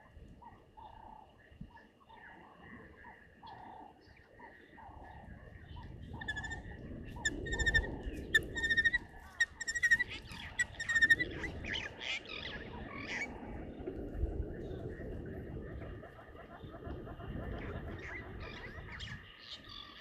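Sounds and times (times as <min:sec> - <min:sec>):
birds calling: 0:03.0 - 0:13.3.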